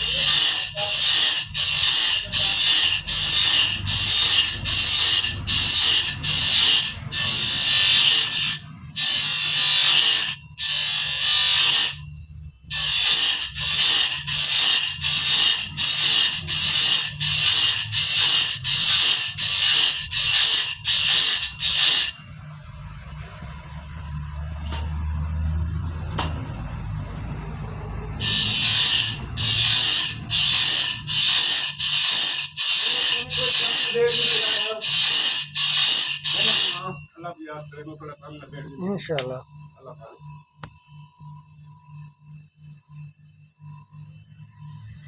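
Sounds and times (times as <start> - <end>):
file rasping on saw blade: 0.0 - 12.0, 12.7 - 22.2, 28.2 - 36.8.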